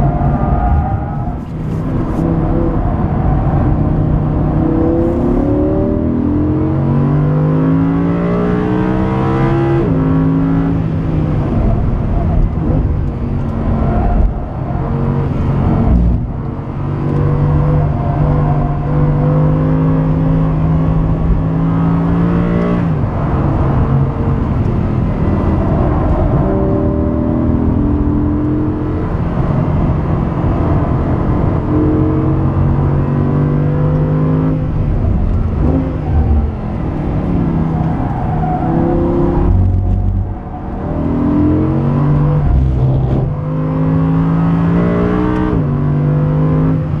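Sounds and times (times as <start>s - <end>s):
sports car engine revving: 14.6s - 47.0s.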